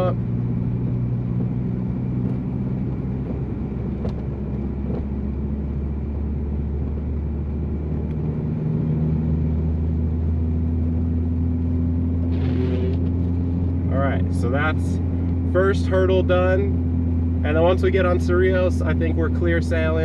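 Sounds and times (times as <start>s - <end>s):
car engine drone: 0.0s - 20.0s
road and tyre noise: 0.0s - 20.0s.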